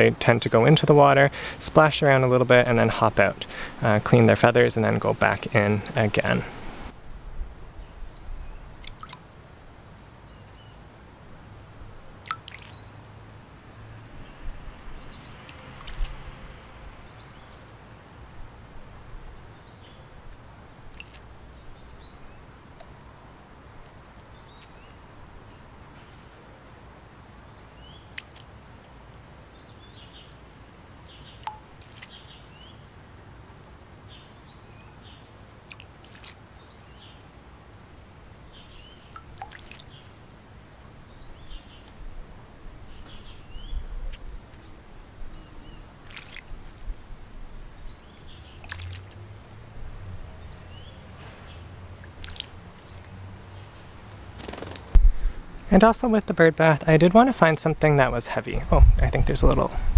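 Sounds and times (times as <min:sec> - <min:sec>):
small birds chirping: 0:02.8 - 0:09.3, 0:11.9 - 0:13.5, 0:14.2 - 0:16.2, 0:19.5 - 0:23.2, 0:23.8 - 0:26.5, 0:27.3 - 0:46.9, 0:47.8 - 0:56.6
bird splashing in water: 0:12.2 - 0:12.9, 0:15.4 - 0:16.3, 0:20.9 - 0:21.3, 0:35.7 - 0:36.4, 0:39.1 - 0:40.1, 0:46.0 - 0:46.6, 0:48.6 - 0:49.2, 0:52.0 - 0:52.8.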